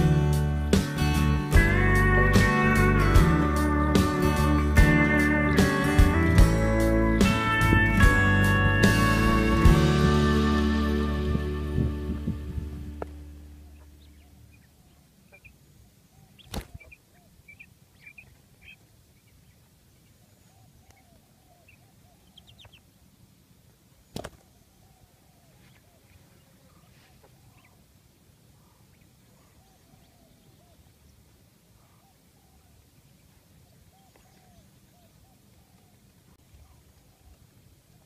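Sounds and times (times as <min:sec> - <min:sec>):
background music: 0:00.0 - 0:13.7
small birds chirping and warbling: 0:13.1 - 0:23.0, 0:23.9 - 0:38.0.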